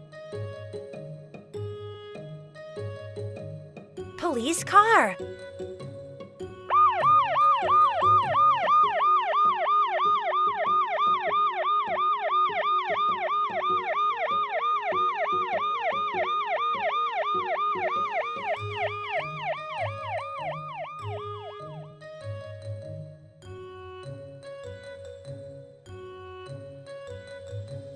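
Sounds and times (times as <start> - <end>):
children's background music: 4.2 - 5.2.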